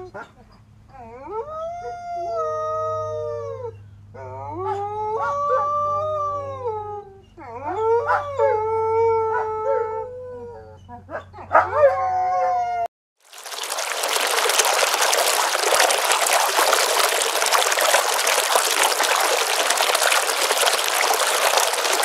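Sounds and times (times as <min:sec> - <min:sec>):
canids howling together: 0:13.4 - 0:22.0.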